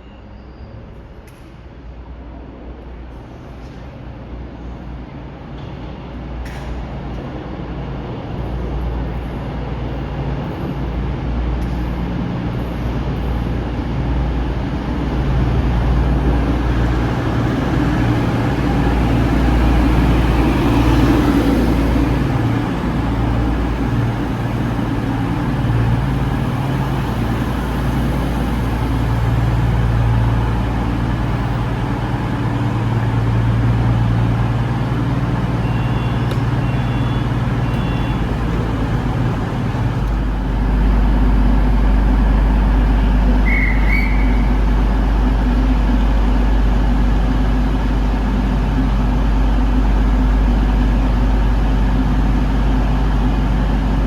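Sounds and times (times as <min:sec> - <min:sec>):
train rumbling: 0:00.0 - 0:54.0
faint short beeps: 0:35.6 - 0:38.3.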